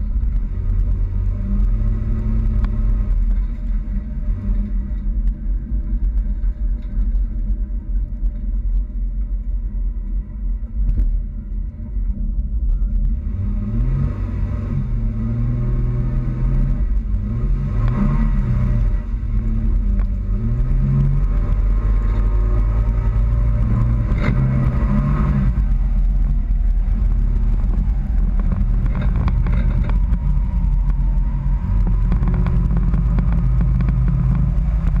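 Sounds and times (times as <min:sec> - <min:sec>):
pickup truck engine running: 0:16.7 - 0:35.0.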